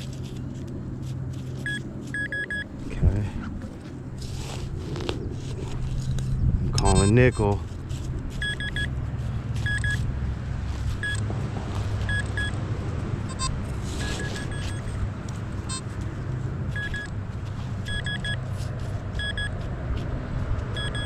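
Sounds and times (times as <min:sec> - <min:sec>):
metal detector short high beeps: 0:01.6 - 0:02.6, 0:06.8 - 0:07.2, 0:08.4 - 0:08.9, 0:09.6 - 0:10.0, 0:13.3 - 0:15.0, 0:17.9 - 0:18.4, 0:19.2 - 0:19.5, 0:20.8 - 0:21.0.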